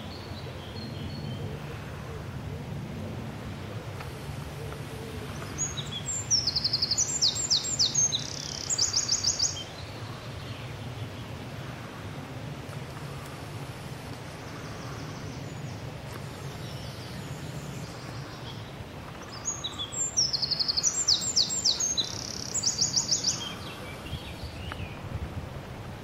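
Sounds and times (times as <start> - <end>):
low background rush: 0.0 - 26.0
songbird trilling: 5.4 - 9.9, 16.6 - 24.9.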